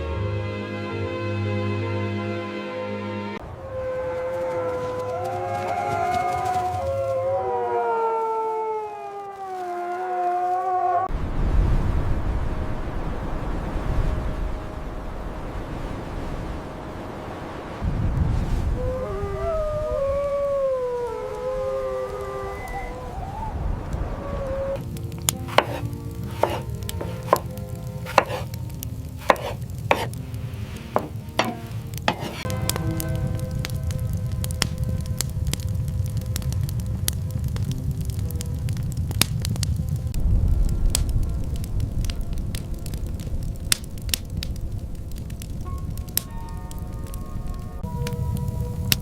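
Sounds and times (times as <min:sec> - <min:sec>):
loud blizzard wind: 0:03.4 - 0:09.6, 0:11.1 - 0:25.3, 0:28.5 - 0:49.0
wolves howling: 0:03.4 - 0:11.1, 0:18.8 - 0:27.4, 0:31.4 - 0:32.5
steady low rumble: 0:28.6 - 0:46.1
sharp crisp impacts: 0:31.0 - 0:32.6.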